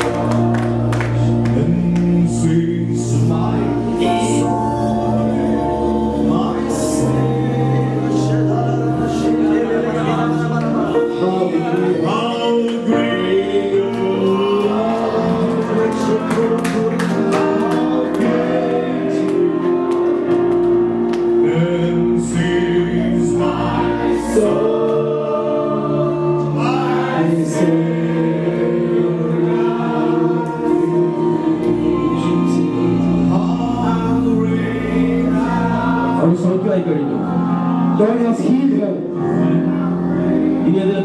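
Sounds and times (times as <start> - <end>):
gospel voices singing: 0.0 - 41.0.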